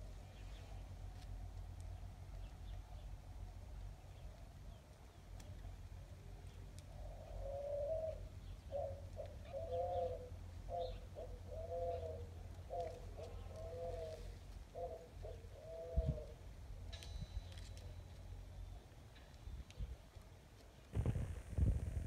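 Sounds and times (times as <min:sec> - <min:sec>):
bird calling: 0:06.4 - 0:16.4.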